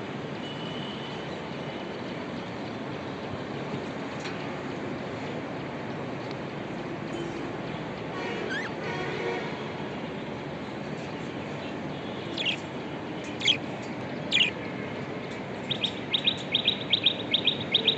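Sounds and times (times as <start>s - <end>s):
budgerigars calling: 12.4s - 12.6s, 13.4s - 13.6s, 14.3s - 14.6s.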